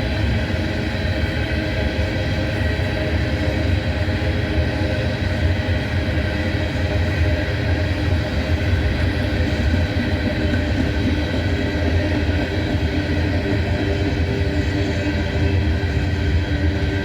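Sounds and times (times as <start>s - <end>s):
diesel locomotives droning under load: 0.0s - 17.0s.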